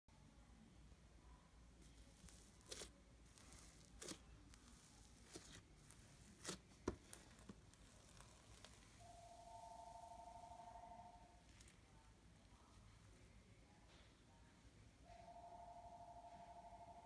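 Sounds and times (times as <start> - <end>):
slime squishing and crackling: 1.8 - 9.0.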